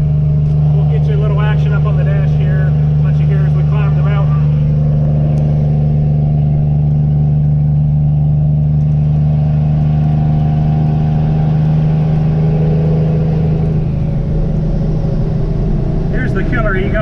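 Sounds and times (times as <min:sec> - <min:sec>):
diesel truck engine drone: 0:00.0 - 0:17.0.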